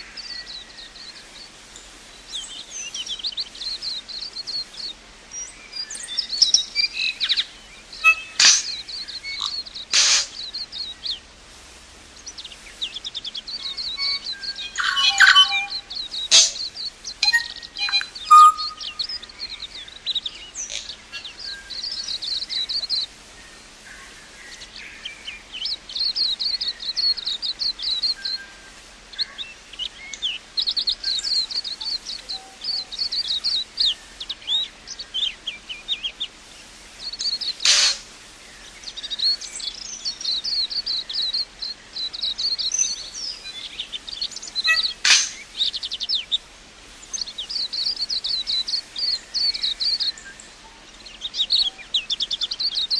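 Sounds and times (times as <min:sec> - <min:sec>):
songbird twittering chirps: 0:00.0 - 0:11.4, 0:12.1 - 0:52.9.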